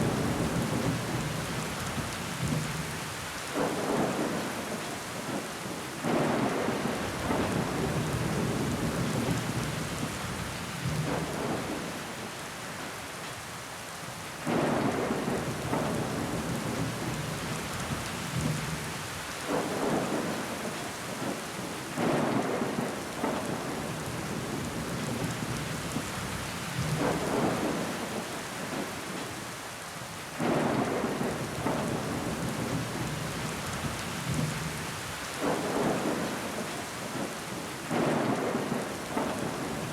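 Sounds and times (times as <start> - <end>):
rain hissing against window glass: 0.0 - 39.9.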